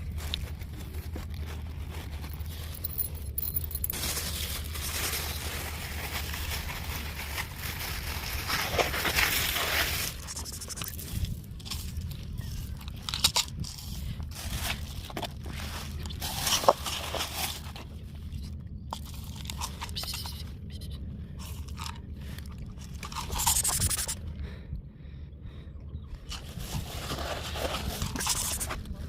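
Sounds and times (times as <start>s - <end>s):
rustling: 0.0s - 20.5s, 26.3s - 29.0s
cat crunching and chewing: 0.0s - 24.2s
steady low hum: 0.0s - 29.0s.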